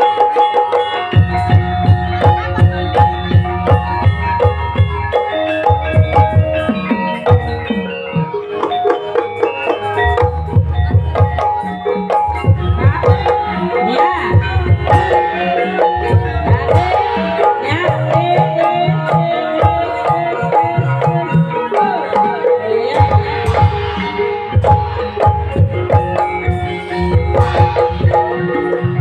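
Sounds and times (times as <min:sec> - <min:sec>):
gamelan music: 0:00.0 - 0:29.0
hand drums playing: 0:00.0 - 0:29.0.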